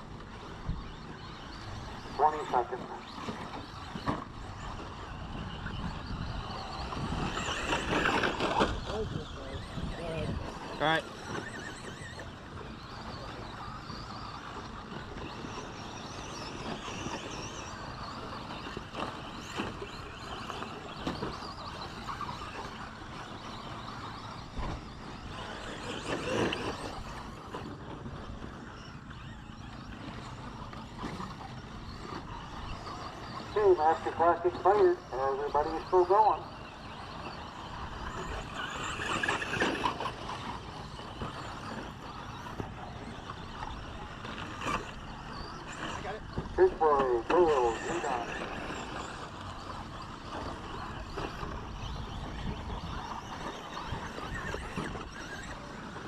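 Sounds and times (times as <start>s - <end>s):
rc truck motors whining: 0.0s - 56.0s.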